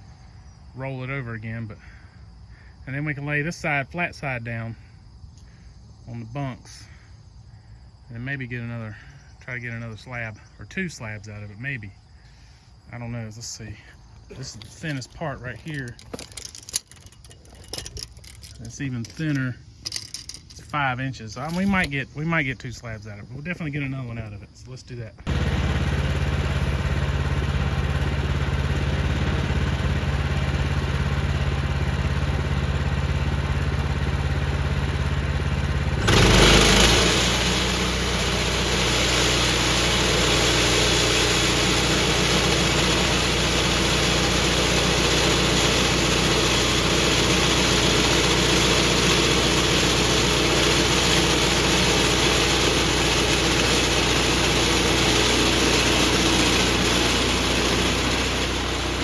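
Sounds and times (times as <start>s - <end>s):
gasoline engine idling and revving: 25.3s - 59.0s
band saw blade spinning: 35.9s - 59.0s.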